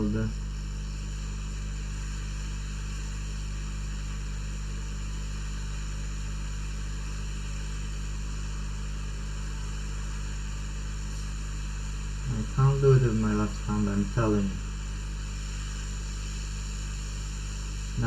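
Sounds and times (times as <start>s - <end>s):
steady low hum: 0.0s - 18.0s
hot air blower hissing: 8.3s - 18.0s.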